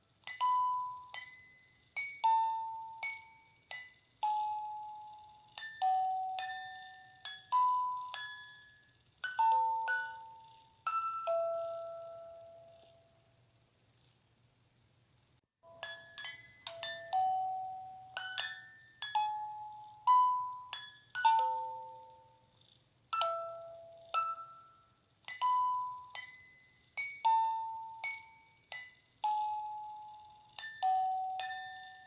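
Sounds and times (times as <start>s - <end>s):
bell-like lullaby melody: 0.0s - 13.2s, 15.6s - 22.5s, 23.1s - 32.0s
faint low hum: 0.1s - 32.0s.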